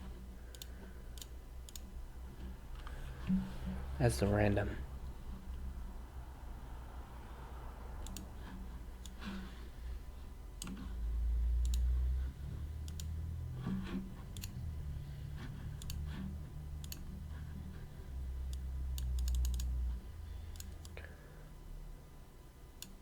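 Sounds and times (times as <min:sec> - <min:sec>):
low hum: 0:00.0 - 0:23.0
mouse and keyboard clicks: 0:08.0 - 0:08.3, 0:14.4 - 0:14.6, 0:15.8 - 0:16.1, 0:16.8 - 0:17.1.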